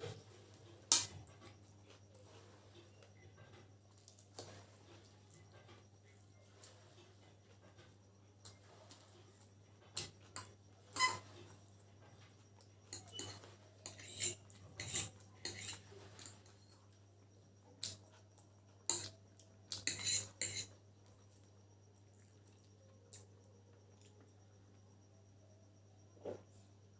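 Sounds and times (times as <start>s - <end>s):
handling and eating noise: 0.0s - 25.4s
cutlery clinking on plate: 12.9s - 16.8s, 19.8s - 20.7s.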